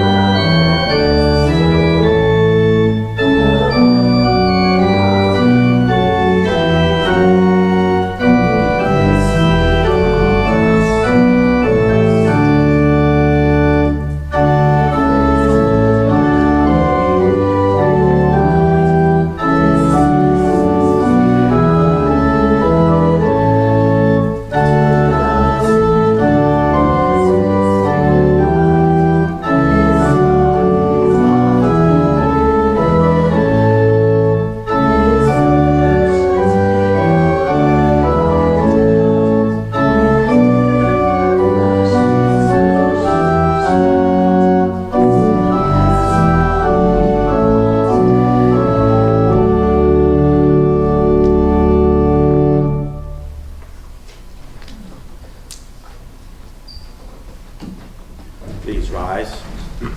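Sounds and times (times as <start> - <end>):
church organ playing hymn: 0.0 - 59.9.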